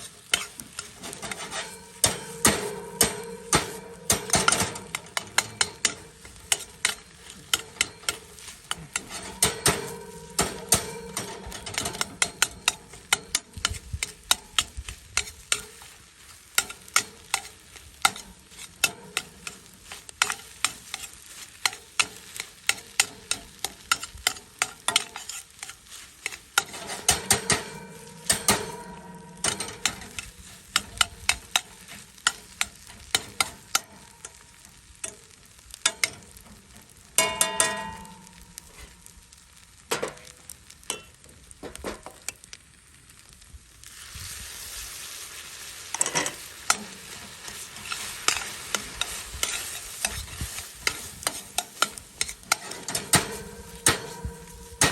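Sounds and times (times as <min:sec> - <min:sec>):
metal utensil clacking on pan: 0:00.0 - 0:16.0, 0:16.6 - 0:39.2, 0:39.9 - 0:42.4, 0:45.9 - 0:54.9
food sizzling: 0:00.0 - 0:54.9
pan ringing: 0:01.2 - 0:08.2, 0:09.0 - 0:13.4, 0:26.7 - 0:31.9, 0:37.2 - 0:39.1, 0:52.6 - 0:54.9.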